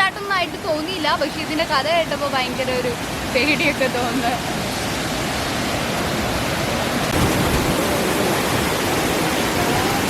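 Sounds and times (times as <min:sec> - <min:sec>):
waterfall rushing over rocks: 0:00.0 - 0:10.0.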